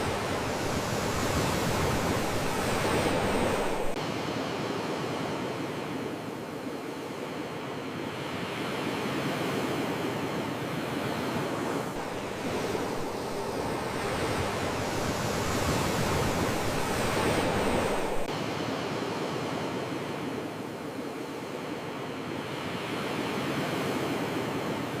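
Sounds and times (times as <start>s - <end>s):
surf rushing: 0.0s - 4.0s, 11.5s - 18.3s.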